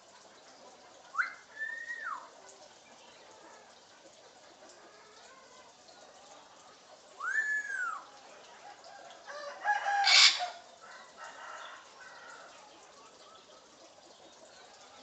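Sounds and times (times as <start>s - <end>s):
parrot whistling and squawking: 1.1s - 2.3s, 10.0s - 10.6s.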